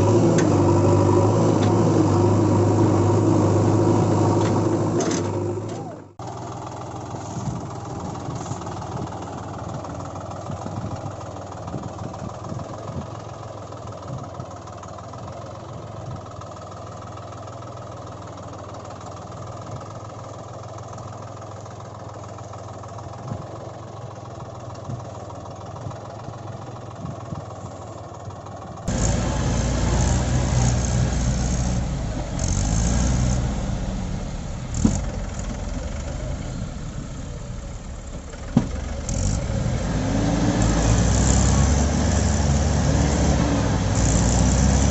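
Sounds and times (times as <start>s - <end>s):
heavier engine sound: 0.0s - 13.1s, 24.8s - 44.9s
vehicle engine running: 0.0s - 44.9s.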